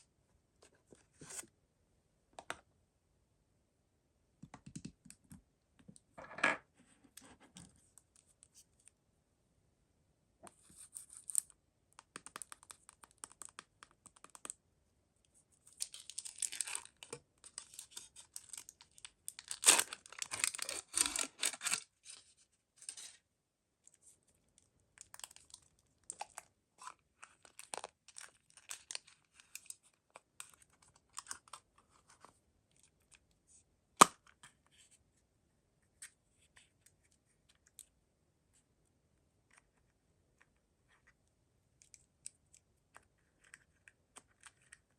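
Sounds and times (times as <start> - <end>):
packaging tearing and crinkling: 15.8 - 21.8.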